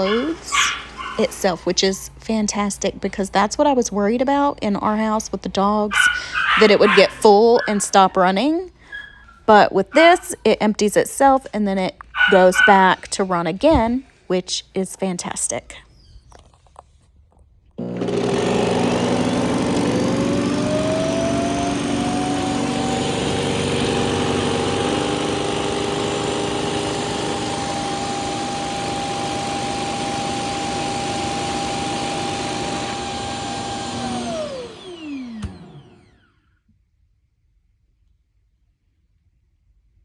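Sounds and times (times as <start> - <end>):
suction motor whine: 17.8 - 36.3.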